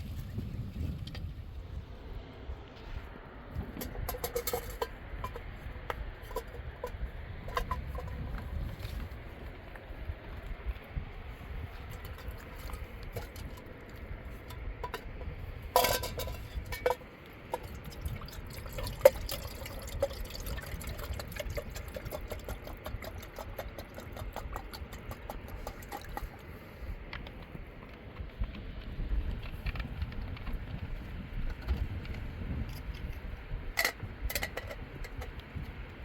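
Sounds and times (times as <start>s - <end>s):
low water rush: 0.0s - 28.9s
water splashing and trickling: 3.8s - 9.9s, 11.3s - 27.0s.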